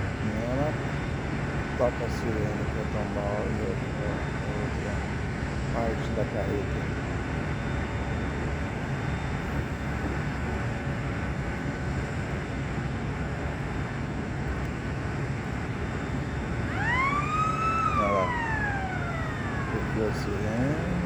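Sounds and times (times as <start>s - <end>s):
machinery rumble: 15.2s - 21.0s
siren winding up: 16.6s - 21.0s.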